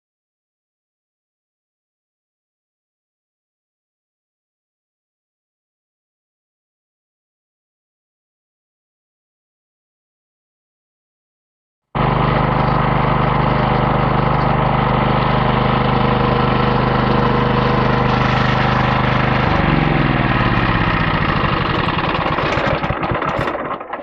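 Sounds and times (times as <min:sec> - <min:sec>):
sawmill engine running and winding down: 0:12.0 - 0:24.0.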